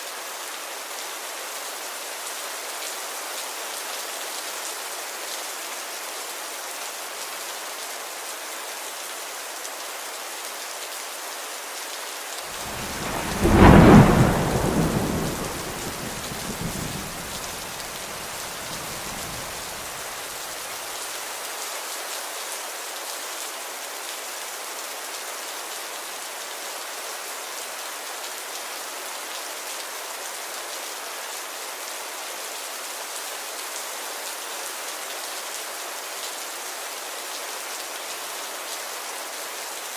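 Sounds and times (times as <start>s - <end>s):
steady rain falling: 0.0s - 39.9s
thunder clap rumbling: 12.6s - 20.0s.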